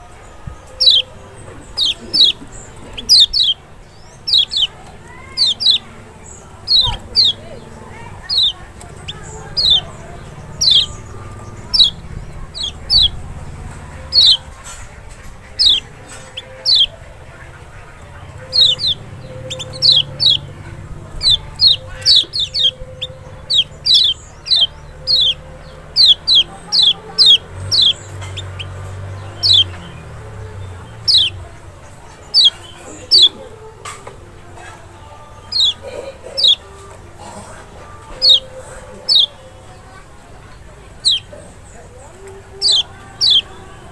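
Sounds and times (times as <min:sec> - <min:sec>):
bird whistled calls: 0:00.5 - 0:13.2, 0:14.1 - 0:14.6, 0:15.5 - 0:17.0, 0:18.4 - 0:30.0, 0:38.1 - 0:39.4, 0:41.0 - 0:41.4.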